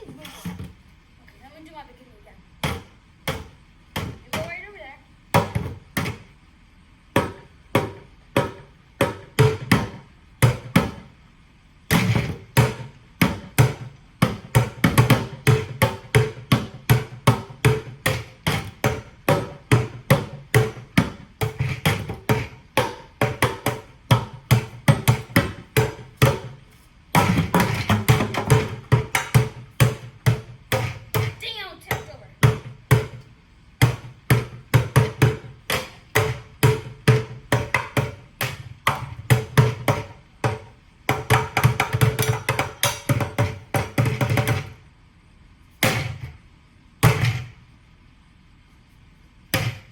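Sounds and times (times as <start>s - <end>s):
drumsticks beating buckets: 11.9s - 44.8s.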